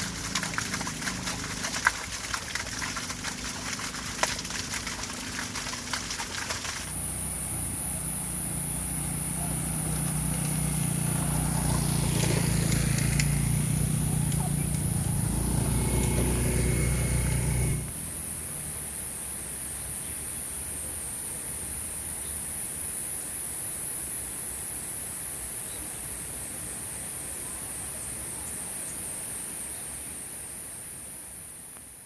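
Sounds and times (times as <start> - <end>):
vehicle engine running: 0.0 - 19.0
drizzling rain hiss: 0.0 - 19.6
high-pitched insect chorus: 0.0 - 31.7.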